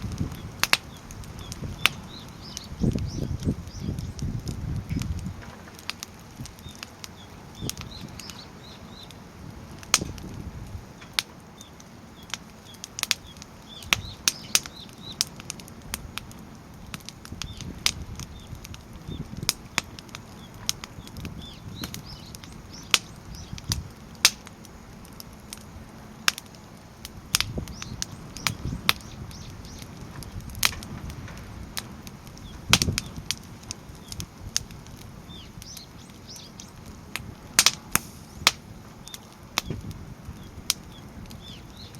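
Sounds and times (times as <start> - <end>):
firewood crackling: 0.0 - 41.9
low rush of flame: 0.0 - 41.9
sharp pops and snaps: 0.0 - 41.9.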